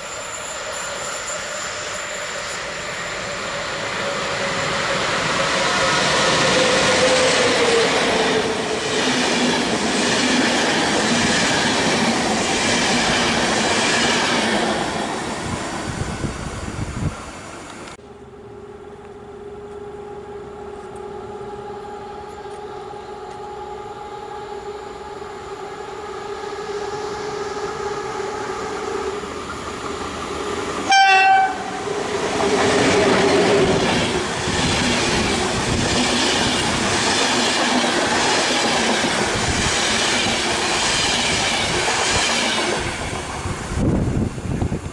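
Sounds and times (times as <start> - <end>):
train approaching hum: 0.0 - 44.9
train horn blast: 30.8 - 31.9.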